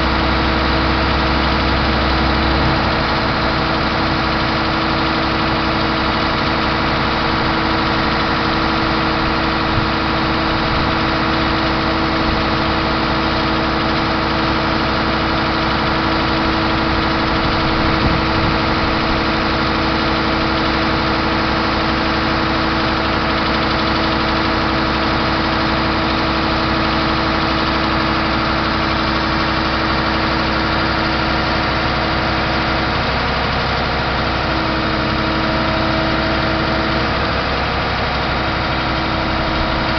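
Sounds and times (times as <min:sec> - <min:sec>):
steady hum: 0:00.0 - 0:05.8, 0:38.1 - 0:39.9
truck diesel engine idling: 0:00.0 - 0:39.9.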